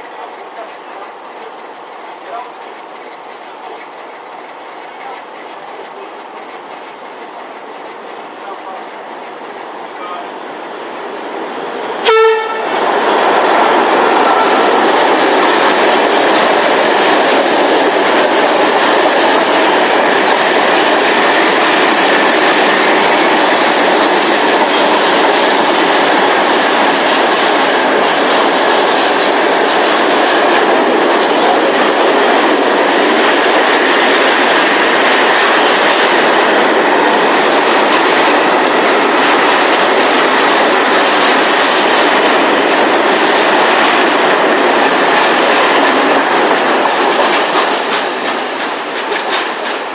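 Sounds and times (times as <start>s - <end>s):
train passing with rail noise: 0.0s - 49.9s
train horn blast: 12.0s - 12.8s.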